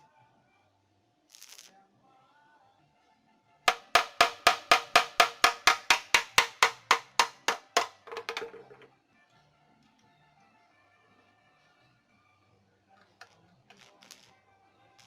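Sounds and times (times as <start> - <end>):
hammer striking metal: 3.7 - 8.5.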